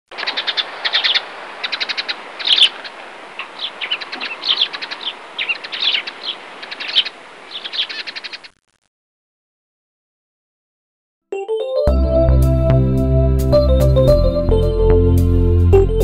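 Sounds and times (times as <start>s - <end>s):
small birds chirping: 0.1s - 8.8s
steady background hiss: 0.2s - 8.5s.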